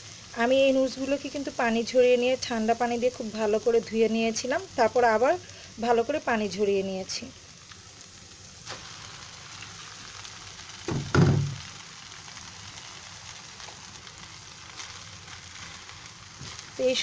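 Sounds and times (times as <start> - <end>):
food sizzling in a frying pan: 0.0 - 17.0
noodles landing in pan thump: 10.9 - 11.6.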